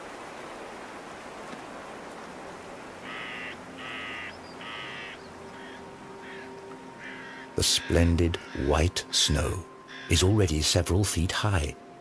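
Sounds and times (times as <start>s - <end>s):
background hiss: 0.0s - 12.0s
bird calling harshly: 3.0s - 8.7s, 9.9s - 10.2s.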